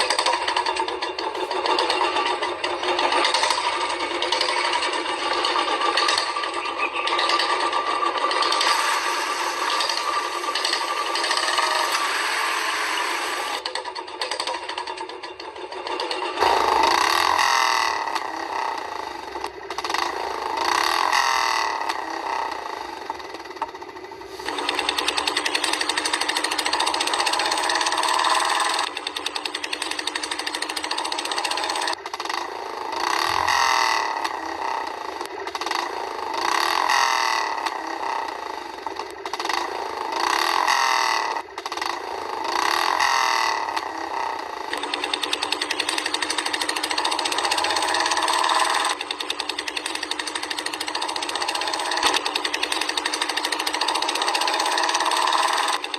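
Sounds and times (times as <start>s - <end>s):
small electric motor buzzing: 7.3s - 13.6s, 24.3s - 35.0s, 39.5s - 55.9s.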